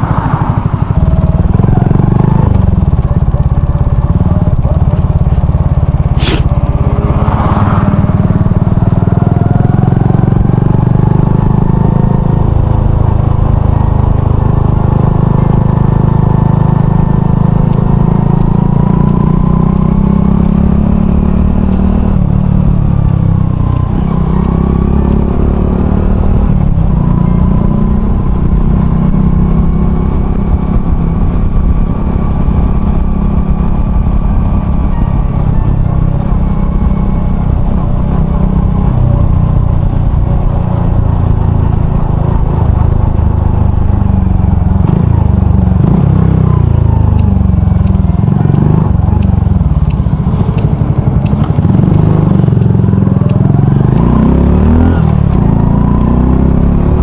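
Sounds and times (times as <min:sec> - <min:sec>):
motorcycle engine running: 0:00.0 - 0:57.0
wind rumble on microphone: 0:00.0 - 0:57.0.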